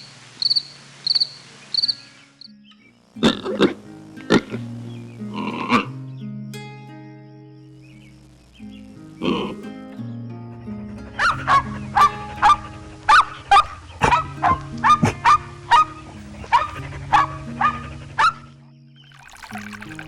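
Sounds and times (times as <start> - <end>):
background music with held notes: 2.5 - 19.0
animal yapping: 10.9 - 18.6.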